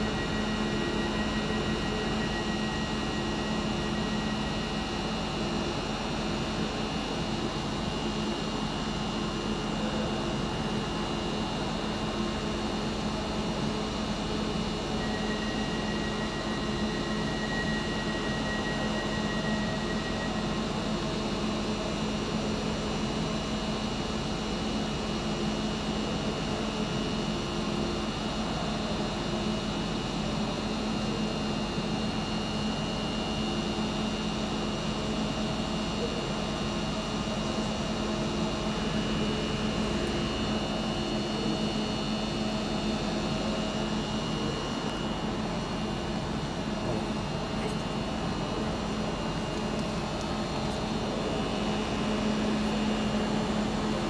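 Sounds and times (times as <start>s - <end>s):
faint high steady tones: 0.0s - 5.8s.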